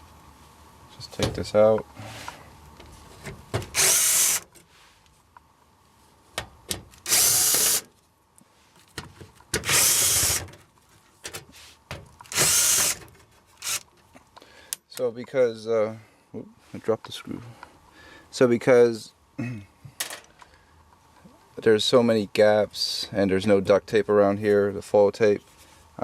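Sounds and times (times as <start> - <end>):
cordless drill motor: 3.7 - 4.5, 7.0 - 7.9, 9.6 - 10.5, 12.3 - 13.0, 13.6 - 13.8.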